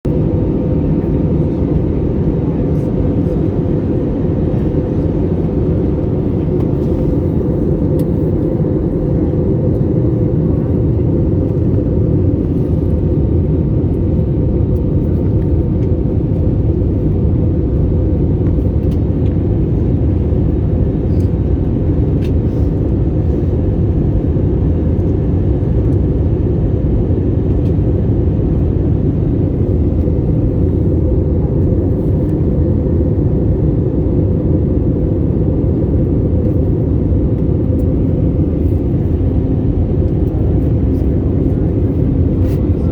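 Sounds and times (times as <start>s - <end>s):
jet airliner rumble in flight: 0.0s - 42.9s.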